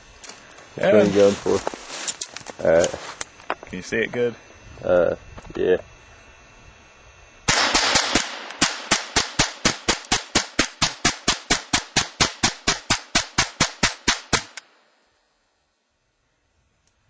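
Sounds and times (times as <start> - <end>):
rifle shots: 7.5 - 14.8.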